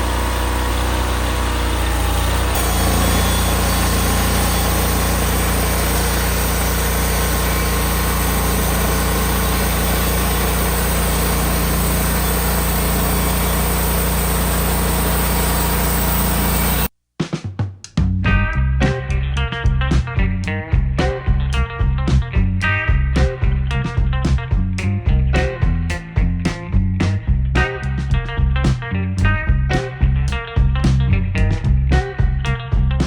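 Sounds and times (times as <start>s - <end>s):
engine running steadily: 0.0s - 16.9s
plucked guitar music: 18.3s - 33.0s.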